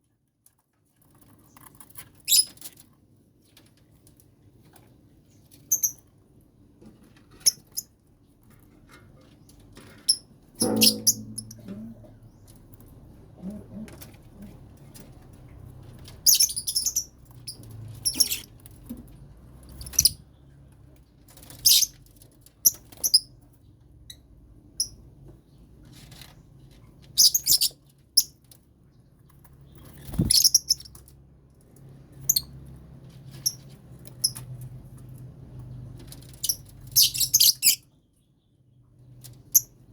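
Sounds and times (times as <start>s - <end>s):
faint low hum: 10.6s - 16.2s
lovebirds chirping: 16.2s - 17.2s, 29.7s - 31.0s.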